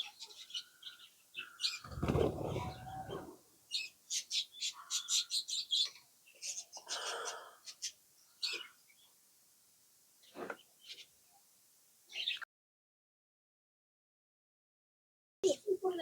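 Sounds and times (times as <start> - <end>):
bird chick chirping: 0.0 - 9.1.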